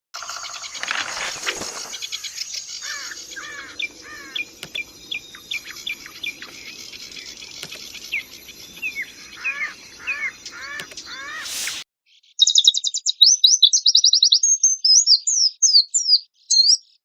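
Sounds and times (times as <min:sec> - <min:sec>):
white-eye singing harsh song: 0:08.9 - 0:11.9.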